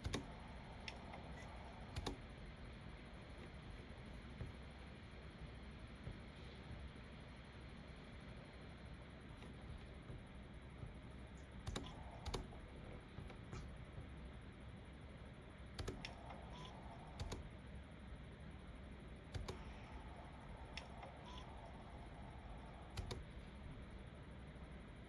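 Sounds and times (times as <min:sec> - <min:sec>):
computer keyboard keystrokes: 0:00.0 - 0:02.2, 0:09.4 - 0:14.1, 0:15.8 - 0:17.5, 0:19.3 - 0:23.4.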